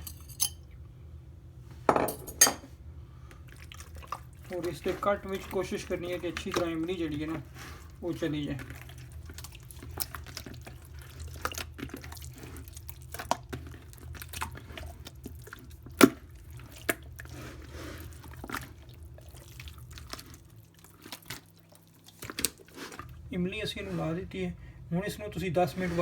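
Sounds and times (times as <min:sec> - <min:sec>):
low steady hum: 0:00.0 - 0:26.0
hands squishing paste on fish: 0:03.3 - 0:24.2.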